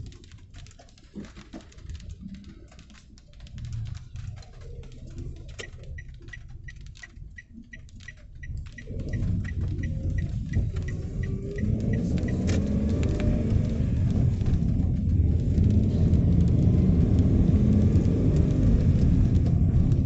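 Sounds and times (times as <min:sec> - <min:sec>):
light rain pattering and dripping: 0:00.0 - 0:20.0
rapid high-pitched ticking: 0:03.4 - 0:18.6.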